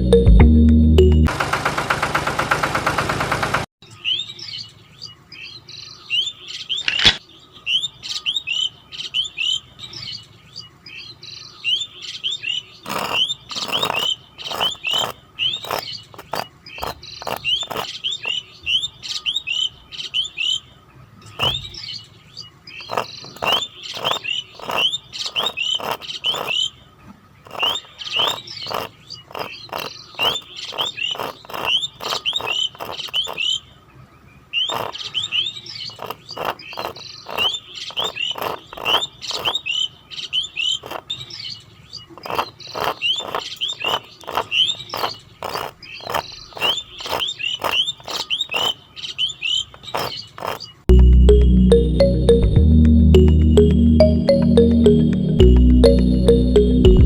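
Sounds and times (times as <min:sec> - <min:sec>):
small birds chirping: 0:07.6 - 0:20.6, 0:21.2 - 0:33.8, 0:34.6 - 0:50.9.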